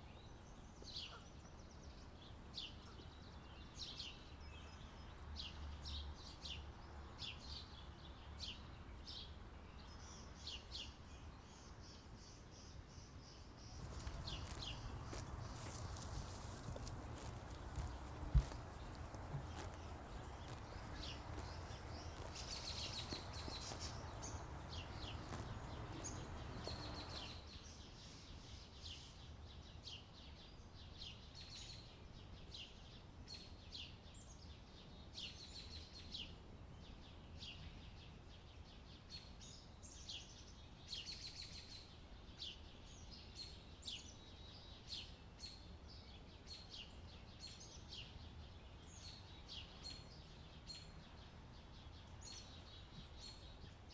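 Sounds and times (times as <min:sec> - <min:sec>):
small birds chirping: 0:13.7 - 0:27.4.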